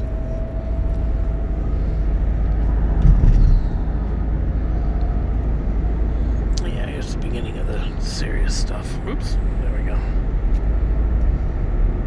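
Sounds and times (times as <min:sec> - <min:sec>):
engine and tyre rumble: 0:00.0 - 0:12.0
low thump: 0:02.9 - 0:03.9.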